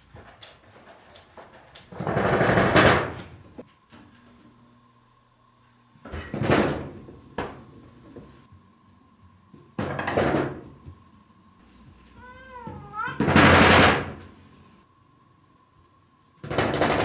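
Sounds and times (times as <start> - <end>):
cat meowing: 12.2 - 13.3.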